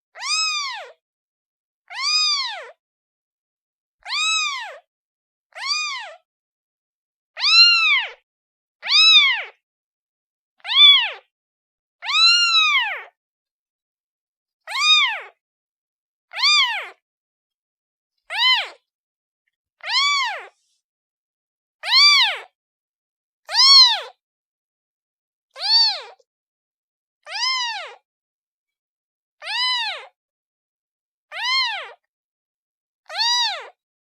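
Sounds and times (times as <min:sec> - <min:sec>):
kitten meowing: 0:00.2 - 0:01.0, 0:01.9 - 0:02.8, 0:04.1 - 0:04.8, 0:05.5 - 0:06.2, 0:07.4 - 0:08.2, 0:08.8 - 0:09.6, 0:10.6 - 0:11.2, 0:12.0 - 0:13.1, 0:14.7 - 0:15.4, 0:16.3 - 0:17.0, 0:18.3 - 0:18.8, 0:19.8 - 0:20.5, 0:21.8 - 0:22.5, 0:23.5 - 0:24.2, 0:25.6 - 0:26.2, 0:27.3 - 0:28.0, 0:29.4 - 0:30.1, 0:31.3 - 0:32.0, 0:33.1 - 0:33.8.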